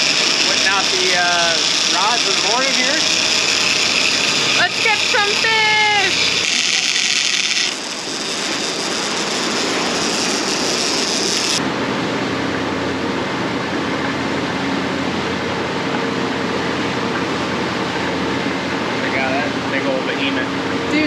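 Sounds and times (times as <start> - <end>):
faint low engine hum: 0.0 - 7.0, 11.6 - 21.0
sea noise: 0.0 - 21.0.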